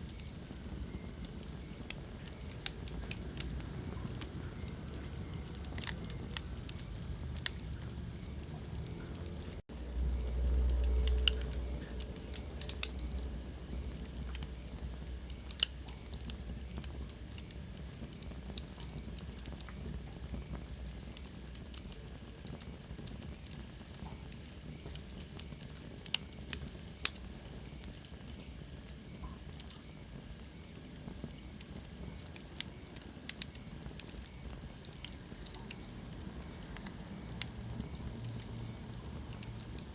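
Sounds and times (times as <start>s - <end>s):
wood fire crackling: 0.0s - 39.9s
low rumble: 3.0s - 15.5s.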